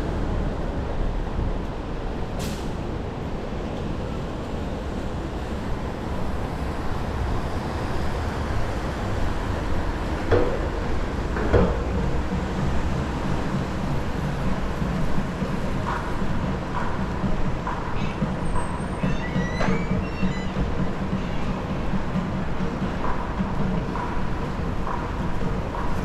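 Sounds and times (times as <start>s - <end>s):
city vehicle rumble: 0.0s - 26.0s
short hiss: 2.4s - 2.8s
brief squeal: 18.6s - 20.6s.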